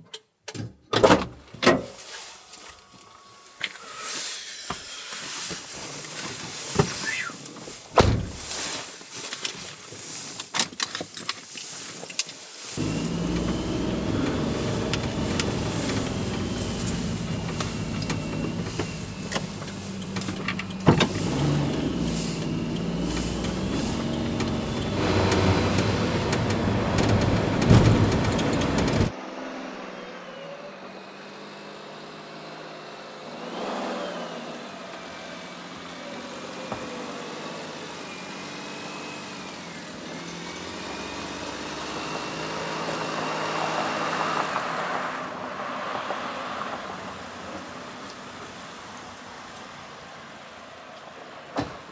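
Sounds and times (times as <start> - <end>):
road noise: 1.6 - 51.9
light truck engine: 12.6 - 51.6.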